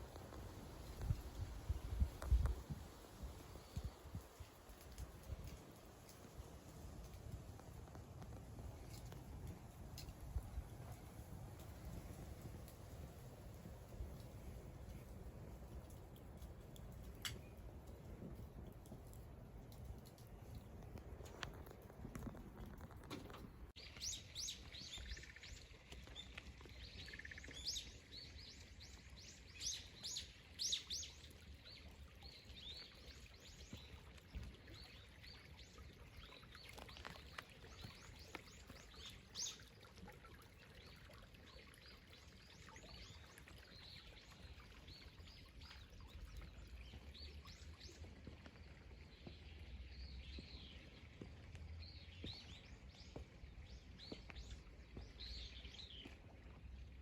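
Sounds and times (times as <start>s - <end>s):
small birds chirping: 23.7s - 56.4s.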